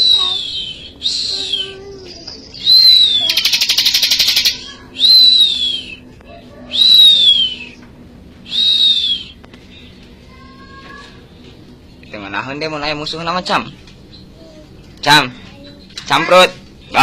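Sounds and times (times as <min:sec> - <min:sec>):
bird buzzy rattle: 0:03.3 - 0:04.6
bird whistled notes: 0:08.4 - 0:09.4.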